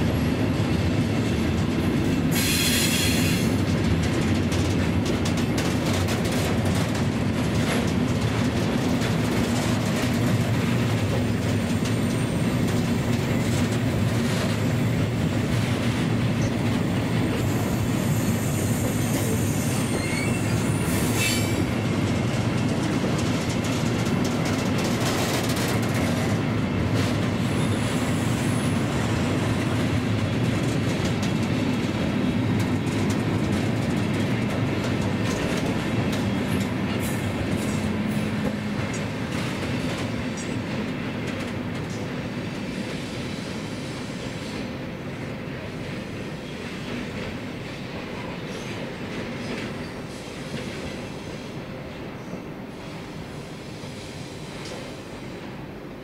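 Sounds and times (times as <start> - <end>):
train running along track: 0.0 - 56.0
faint high wheel squeals: 17.5 - 21.7.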